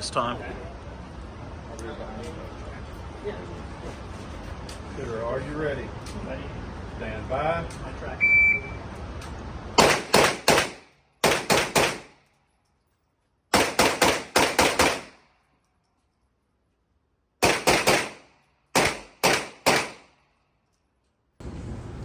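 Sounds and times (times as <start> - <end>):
rifle gunshots: 9.8 - 12.1, 13.5 - 15.2, 17.4 - 20.1.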